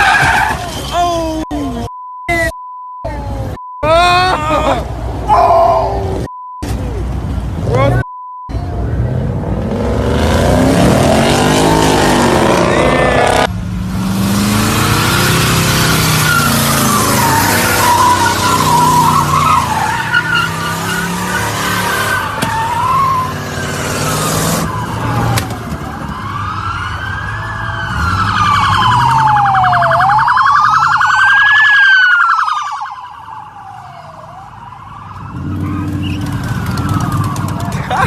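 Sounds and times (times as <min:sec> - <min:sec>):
car tyres squealing: 0:00.0 - 0:01.4, 0:14.6 - 0:26.4, 0:35.3 - 0:38.0
car engine noise: 0:00.0 - 0:32.2, 0:32.8 - 0:38.0
police siren wailing: 0:10.5 - 0:13.5, 0:14.9 - 0:38.0.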